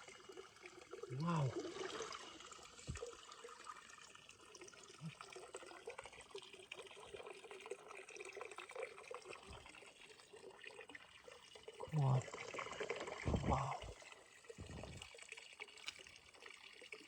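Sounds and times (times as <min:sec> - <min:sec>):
trickle of running water: 0:00.0 - 0:17.0
low thumps: 0:13.3 - 0:14.0, 0:14.6 - 0:15.0.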